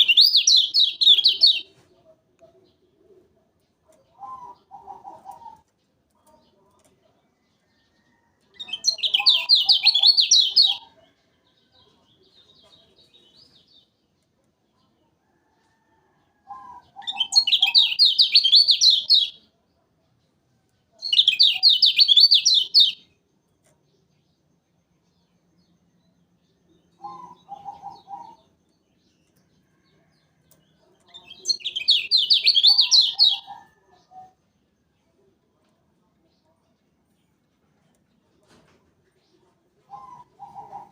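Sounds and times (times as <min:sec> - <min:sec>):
bird singing trilled phrases: 0:00.0 - 0:01.7, 0:08.6 - 0:10.8, 0:16.7 - 0:19.4, 0:21.0 - 0:23.2, 0:31.1 - 0:33.6.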